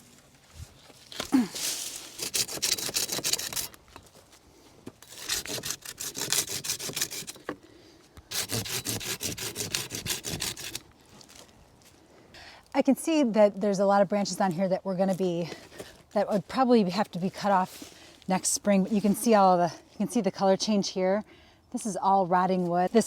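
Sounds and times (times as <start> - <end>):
hand saw cutting wood: 2.1 - 3.7, 5.0 - 7.5, 8.3 - 10.8.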